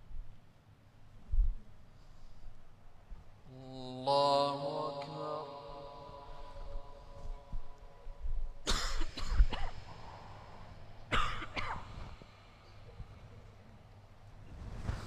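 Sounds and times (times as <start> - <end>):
person coughing: 8.6 - 12.4.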